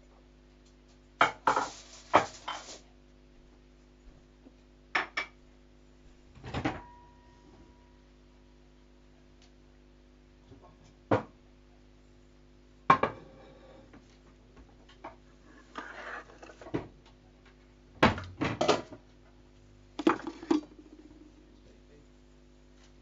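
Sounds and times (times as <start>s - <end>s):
steady low hum: 5.5s - 23.0s.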